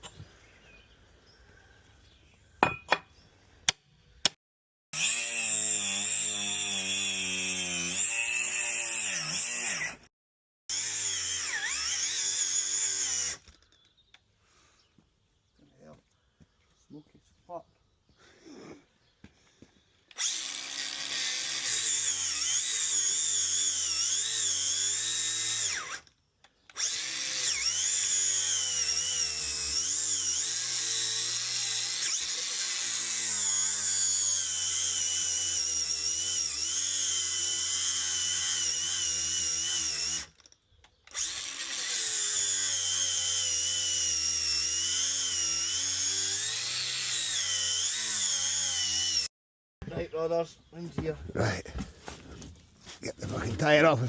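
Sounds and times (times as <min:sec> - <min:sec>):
power tool cutting rubber tyre: 0:05.0 - 0:10.1, 0:10.7 - 0:13.6, 0:20.1 - 0:49.3.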